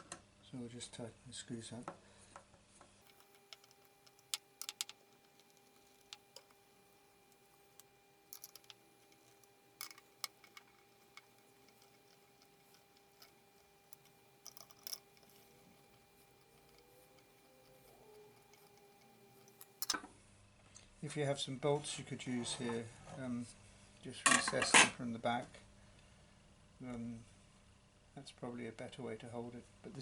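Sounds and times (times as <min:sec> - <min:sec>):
faint steady hum: 0:03.0 - 0:20.1
screwdriver clicking and tapping: 0:03.1 - 0:20.0.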